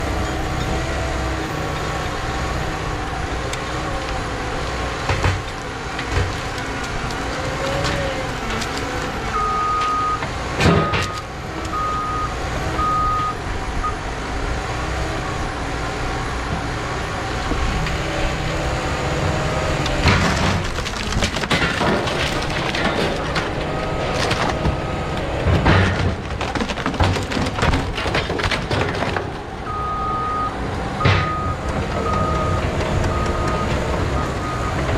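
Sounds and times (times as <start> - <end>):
bulldozer diesel engine: 0.0 - 34.9
wood cracking and knocking: 3.5 - 9.2, 17.4 - 29.6
reversing alarm beeps: 9.3 - 10.2, 10.8 - 14.0, 29.7 - 34.9.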